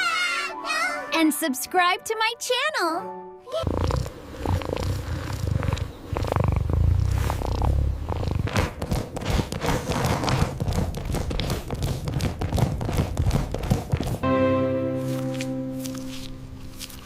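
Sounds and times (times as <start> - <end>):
held musical chord: 14.2 - 17.0.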